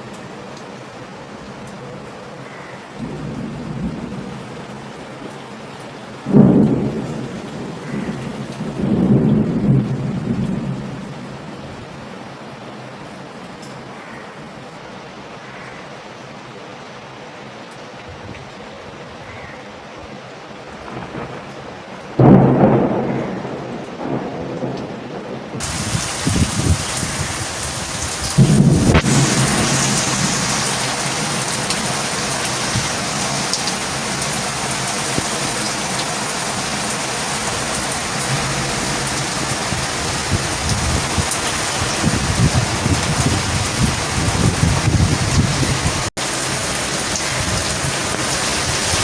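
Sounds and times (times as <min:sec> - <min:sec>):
thunder rumbling: 0:03.0 - 0:12.5, 0:20.8 - 0:49.0
heavy rain hissing: 0:20.6 - 0:49.0.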